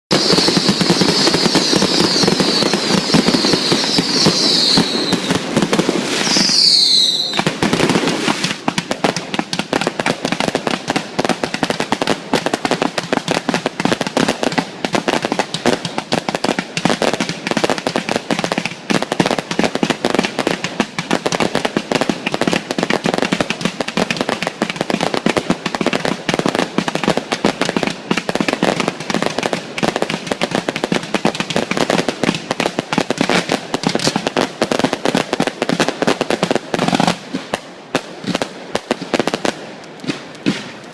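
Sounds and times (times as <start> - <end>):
firework whistles: 0.1 - 8.7, 36.8 - 37.5
firework crackling and popping: 0.1 - 40.9.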